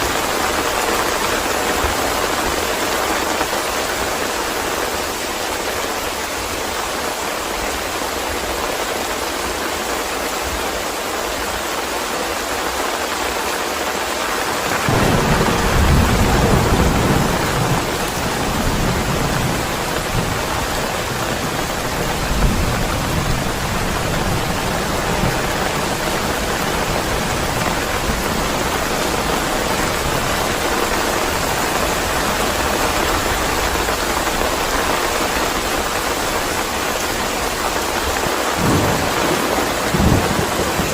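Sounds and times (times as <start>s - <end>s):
heavy rain hissing: 0.0s - 40.9s
thunder rumbling: 14.6s - 40.9s.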